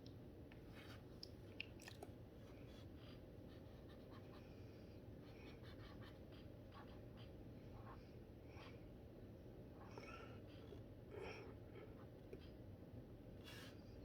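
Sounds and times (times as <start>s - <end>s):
low room hum: 0.0s - 14.0s
brush pen scratching on paper: 3.1s - 4.4s, 5.2s - 8.0s.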